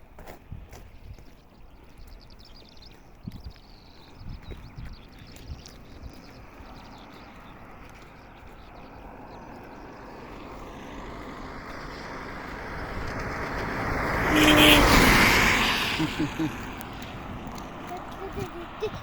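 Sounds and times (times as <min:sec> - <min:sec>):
vehicle passing by: 0:05.0 - 0:19.0.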